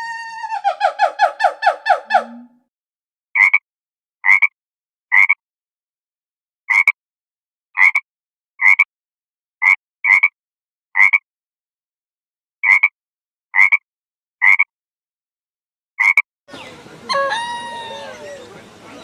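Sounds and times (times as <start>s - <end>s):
short animal call: 17.1s - 19.0s.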